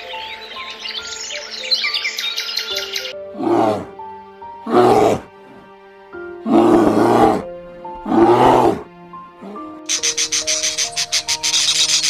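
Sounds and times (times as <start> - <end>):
background music with held notes: 0.0 - 12.0
bear roaring: 3.3 - 4.0, 4.6 - 5.6, 6.4 - 9.8.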